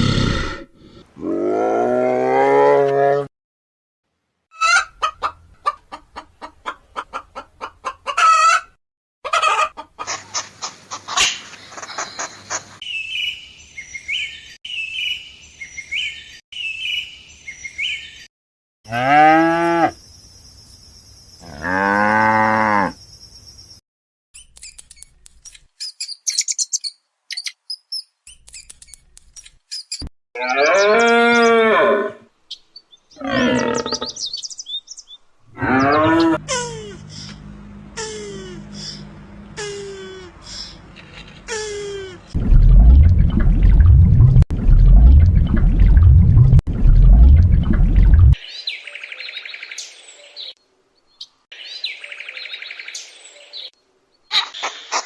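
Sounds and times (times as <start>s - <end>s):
hens clucking: 4.6s - 12.0s
cow mooing: 18.9s - 20.0s, 21.5s - 23.0s, 30.4s - 32.3s, 33.2s - 34.1s, 35.5s - 36.4s
small bird chirping: 24.4s - 30.1s, 32.5s - 35.2s.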